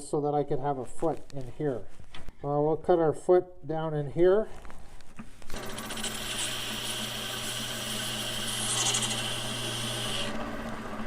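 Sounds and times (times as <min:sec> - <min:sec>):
lathe running hum: 0:05.5 - 0:11.0
tool scraping on wood lathe: 0:05.5 - 0:11.0.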